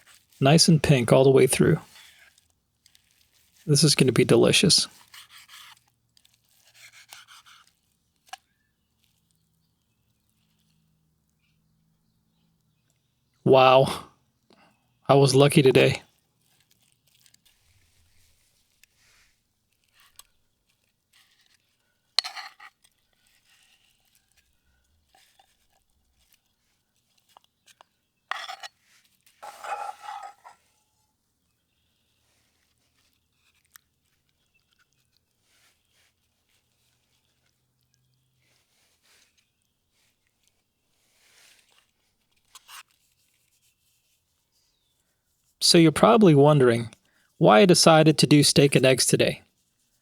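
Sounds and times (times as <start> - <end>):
faint chewing: 4.9 - 11.6, 16.1 - 43.7
utensils clinking on a plate: 22.2 - 22.7, 28.3 - 28.7, 29.4 - 30.6.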